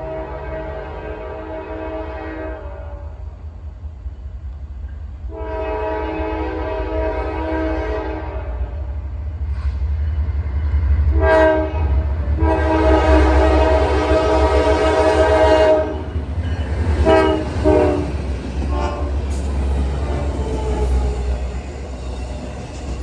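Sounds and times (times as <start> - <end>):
locomotive air horn: 0.0 - 3.1, 5.3 - 8.8, 11.1 - 16.1, 17.0 - 19.2
approaching train rumble: 0.0 - 23.0.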